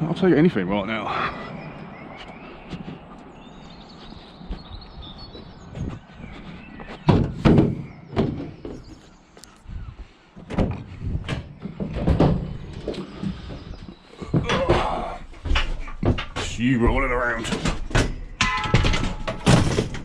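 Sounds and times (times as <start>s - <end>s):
metal knocks and clunks in a van: 6.9s - 9.0s, 10.4s - 20.0s.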